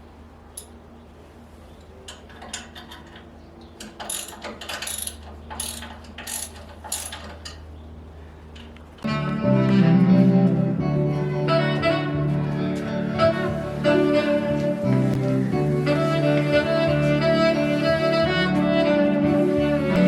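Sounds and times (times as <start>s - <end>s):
ratchet clicking: 3.8s - 7.6s
loud music: 9.1s - 20.0s.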